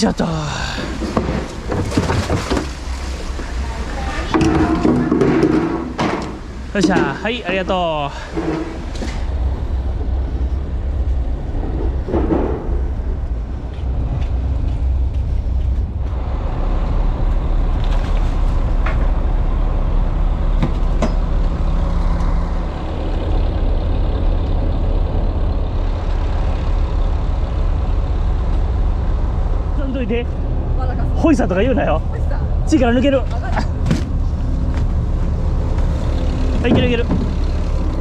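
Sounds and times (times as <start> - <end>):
diesel engine rumbling: 0.0 - 38.0
sharp knocks: 4.3 - 7.3.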